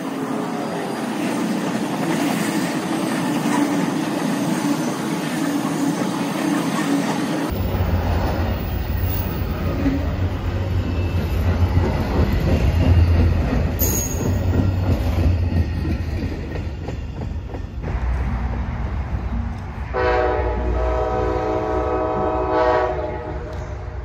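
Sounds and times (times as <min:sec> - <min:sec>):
train cars rumbling past: 0:00.0 - 0:24.0
locomotive horn chord: 0:19.9 - 0:23.8.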